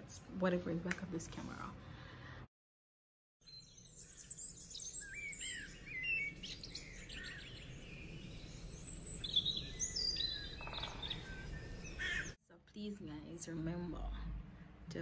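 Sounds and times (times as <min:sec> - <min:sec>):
birds chirping and whistling: 0:03.4 - 0:12.4.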